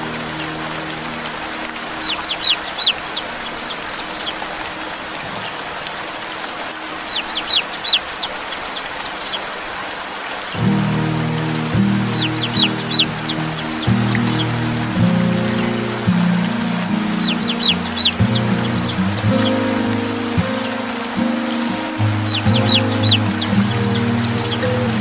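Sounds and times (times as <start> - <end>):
soft music: 0.0 - 8.0, 10.6 - 25.0
steady rain: 0.0 - 25.0
baby chick peeping: 2.0 - 4.4, 7.1 - 9.4, 12.1 - 14.5, 17.2 - 19.6, 22.3 - 24.8.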